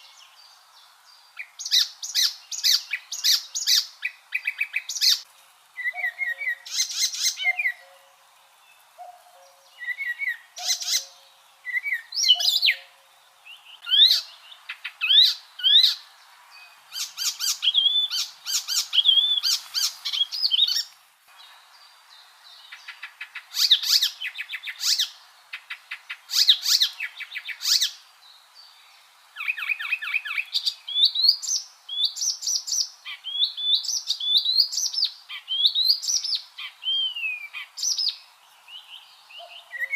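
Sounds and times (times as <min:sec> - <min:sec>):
warbler singing: 0:00.0 - 0:39.9.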